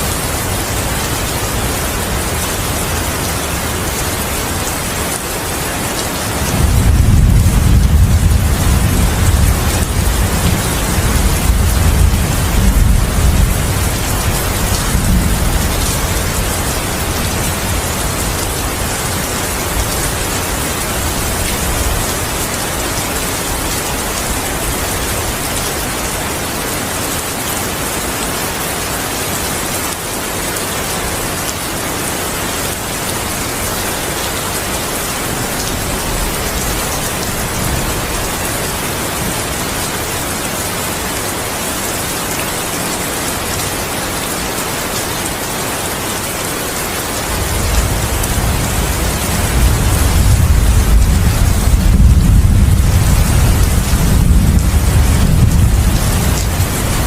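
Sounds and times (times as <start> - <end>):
heavy rain falling: 0.0 - 57.0
low rumble of thunder: 6.4 - 22.5, 47.3 - 57.0.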